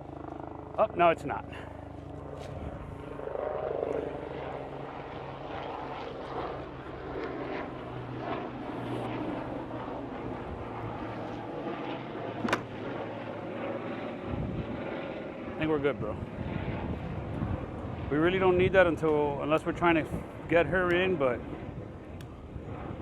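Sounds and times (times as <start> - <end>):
aircraft engine drone: 0.0 - 23.0.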